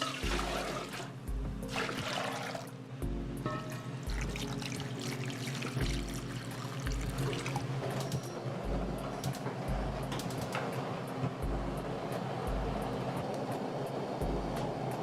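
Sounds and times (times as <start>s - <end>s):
water running: 0.0s - 2.9s, 3.5s - 10.5s
background music: 0.0s - 15.0s.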